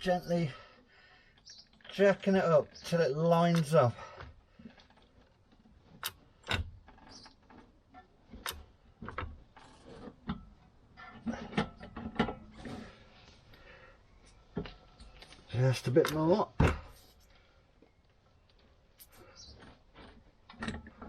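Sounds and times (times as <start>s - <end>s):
metallic clicks and knocks: 4.7s - 12.5s, 14.5s - 17.1s, 20.0s - 21.0s.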